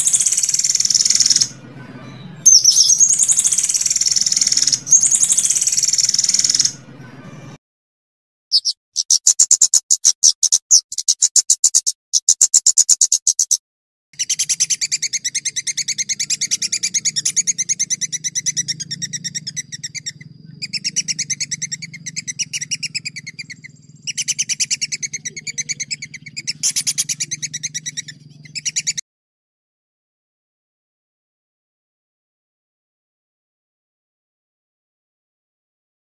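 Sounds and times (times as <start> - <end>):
songbird singing fast trills: 0.0 - 6.9, 8.5 - 13.6, 14.2 - 29.0.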